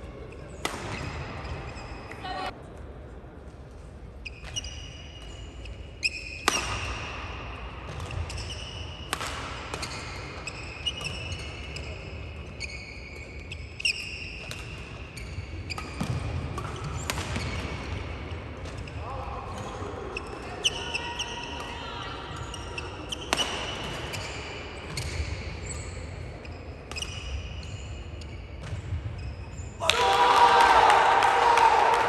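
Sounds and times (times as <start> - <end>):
shoes squeaking on court floor: 0.2 - 2.5, 3.8 - 7.2, 7.8 - 21.6, 22.3 - 29.8
racket hitting shuttlecock: 0.6 - 2.2, 6.3 - 7.3, 7.9 - 11.3, 15.7 - 18.0, 23.1 - 25.2.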